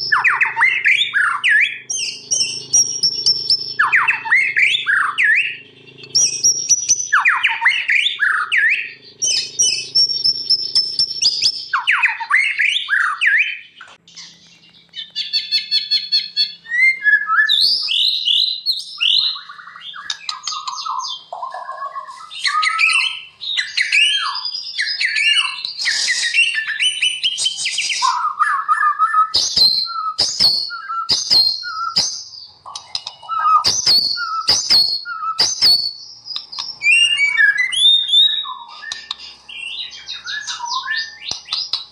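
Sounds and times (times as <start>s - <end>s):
fast rattling trill: 0.0s - 11.7s, 29.3s - 32.2s, 33.2s - 36.0s
bird whistled song: 0.0s - 41.9s
sharp bird clicks: 0.0s - 41.9s.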